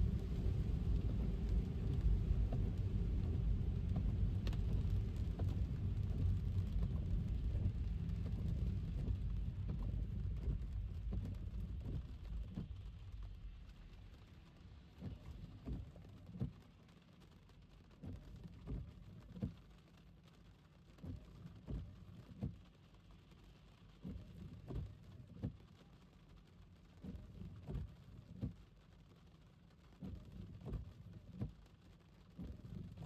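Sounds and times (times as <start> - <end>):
soft low thumps: 0.0 - 13.0
low road rumble: 0.0 - 16.8.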